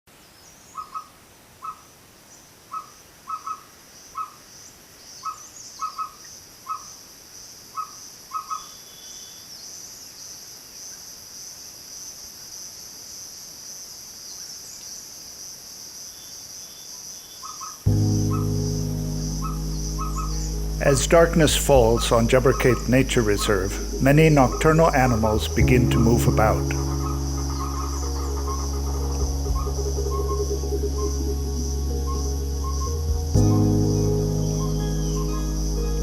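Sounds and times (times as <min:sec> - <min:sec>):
insects chorus: 0:02.7 - 0:36.0
low sustained music tone: 0:17.9 - 0:36.0.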